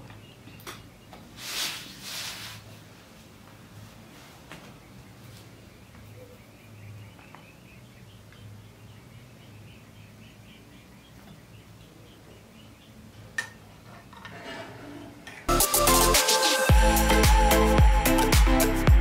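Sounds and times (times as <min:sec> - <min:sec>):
faint bird chirps: 0:04.8 - 0:13.3.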